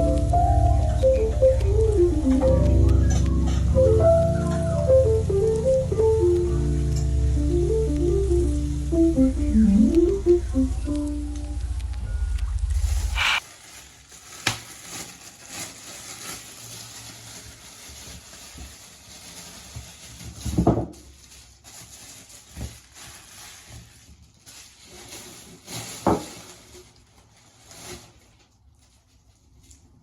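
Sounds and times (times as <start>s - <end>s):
faint steady hiss: 0.0s - 13.4s.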